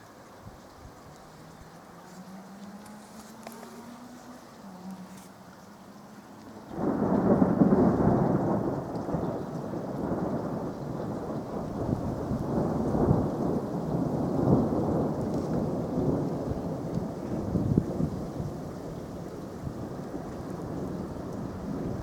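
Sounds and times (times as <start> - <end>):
thunder clap and rolling rumble: 6.7 - 22.0.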